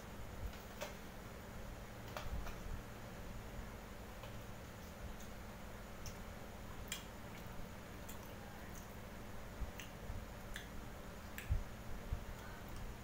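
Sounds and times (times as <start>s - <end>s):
low steady hum: 0.0s - 13.0s
person chewing meat: 4.7s - 13.0s
wet mouth clicks and smacks: 6.8s - 9.0s, 9.7s - 11.6s.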